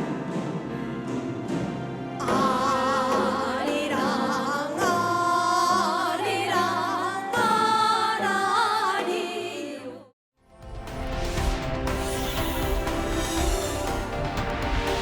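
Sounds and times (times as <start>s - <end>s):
instrumental accompaniment: 0.0s - 6.0s, 10.5s - 15.0s
person singing with vibrato: 2.2s - 10.1s.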